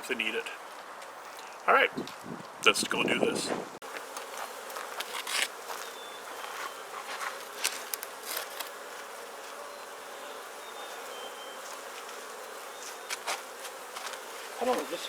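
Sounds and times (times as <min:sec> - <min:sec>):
bees buzzing: 0:03.8 - 0:15.0.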